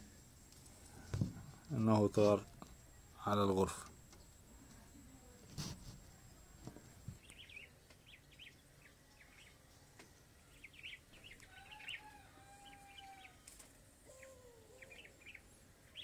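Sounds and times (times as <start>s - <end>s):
small birds chirping: 6.1s - 9.8s, 10.4s - 13.4s, 14.0s - 16.0s.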